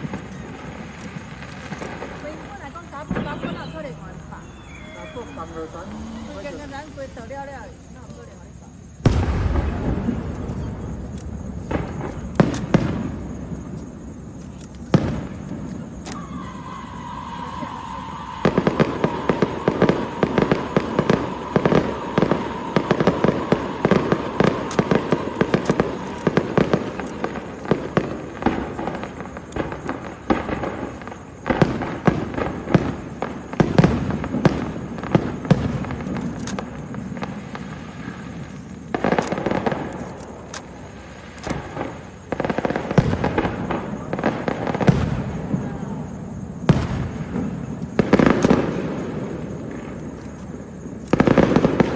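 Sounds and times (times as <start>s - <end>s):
fireworks bangs and crackles: 0.0s - 51.9s
whistle-like tone: 3.2s - 5.9s, 16.2s - 26.2s.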